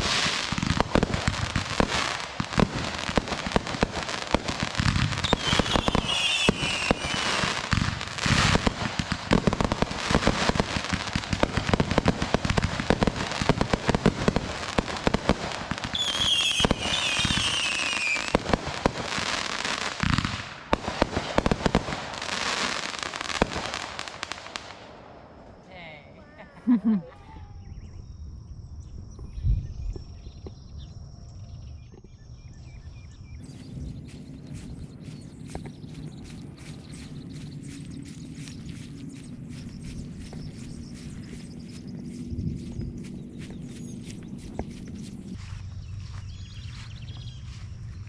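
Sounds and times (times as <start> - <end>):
fireworks crackling and popping: 0.0 - 25.1, 33.4 - 45.4.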